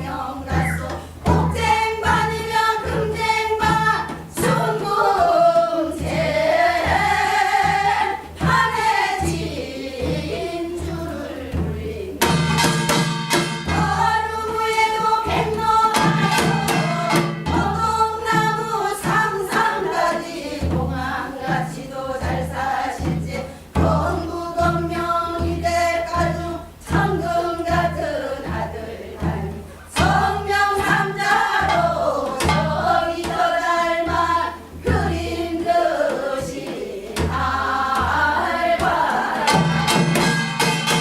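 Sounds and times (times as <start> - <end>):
low drum beat: 0.0 - 12.2
group singing folk song: 0.0 - 41.0.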